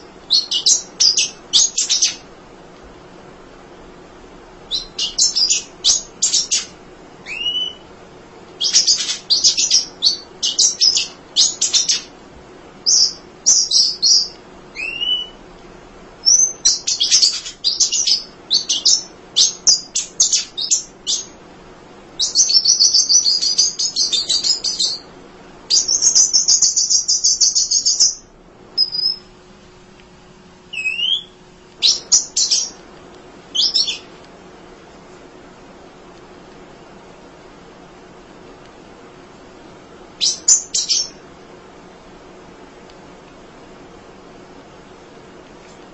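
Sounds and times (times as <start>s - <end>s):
bird chirping and trilling: 0.0s - 2.2s, 4.7s - 7.9s, 8.6s - 12.1s, 12.8s - 15.4s, 16.2s - 21.4s, 22.2s - 25.1s, 25.7s - 29.3s, 30.7s - 32.8s, 33.5s - 34.1s, 40.2s - 41.2s.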